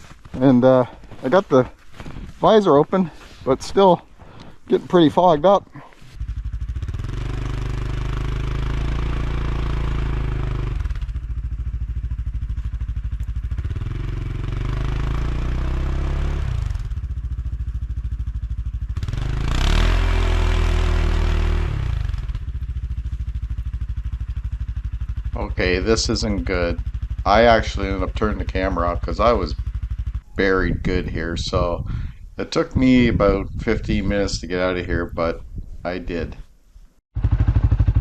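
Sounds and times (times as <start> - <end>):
wheels spinning in snow: 0.0 - 4.0, 5.8 - 25.5, 37.2 - 38.0
atv engine revving: 2.4 - 34.2, 37.2 - 38.0.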